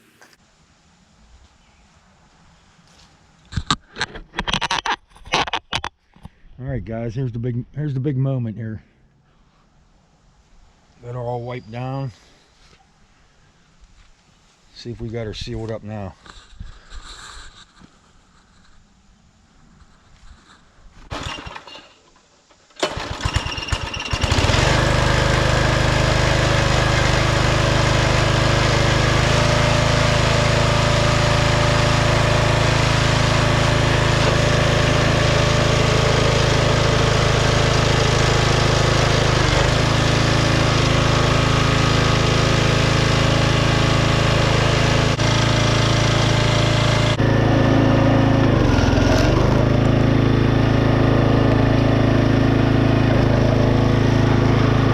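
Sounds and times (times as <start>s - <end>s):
small gas engine running: 21.1s - 54.9s.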